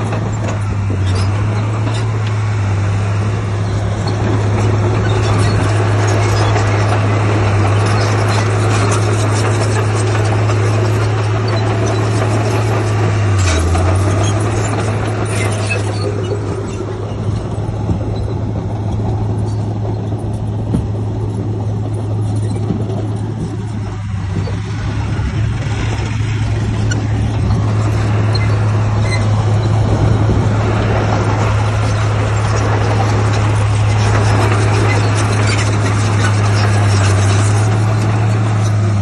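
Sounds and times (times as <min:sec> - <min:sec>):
diesel engine humming: 0:00.0 - 0:39.0.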